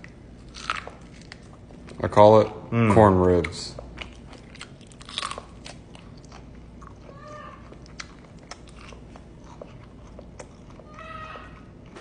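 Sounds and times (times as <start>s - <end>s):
crunchy chewing of corn: 0.0s - 2.0s, 3.0s - 12.0s.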